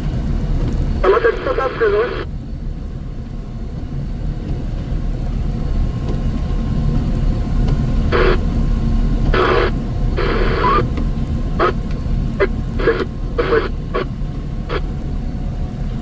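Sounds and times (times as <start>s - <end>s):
crackly radio bursts: 1.0s - 2.3s, 8.1s - 8.4s, 9.4s - 10.9s, 11.6s - 11.8s, 12.4s - 14.1s
heavy machine engine rumbling: 6.4s - 16.0s.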